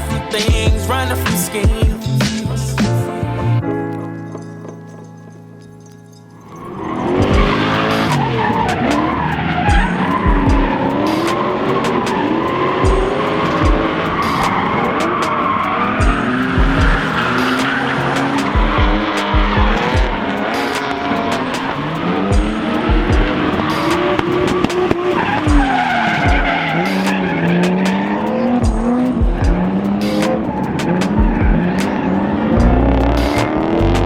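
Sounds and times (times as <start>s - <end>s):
tyres screeching: 6.4s - 34.0s
engine revving hard: 6.9s - 15.2s.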